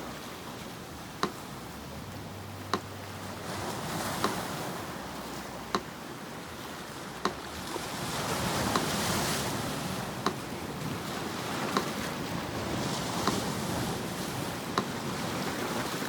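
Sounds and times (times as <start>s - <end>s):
sea surf: 0.0s - 16.0s
metronome ticking: 0.9s - 6.1s, 7.2s - 7.6s, 8.6s - 9.2s, 9.8s - 10.7s, 11.6s - 12.2s, 13.1s - 15.1s.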